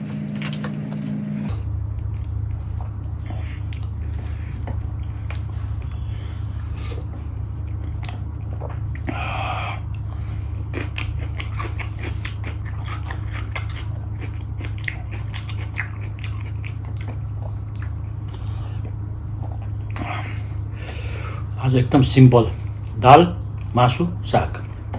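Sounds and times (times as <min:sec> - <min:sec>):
steady low hum: 0:00.0 - 0:24.9
chewing mouth clicks and smacks: 0:03.1 - 0:06.0, 0:07.7 - 0:09.2, 0:09.9 - 0:20.6.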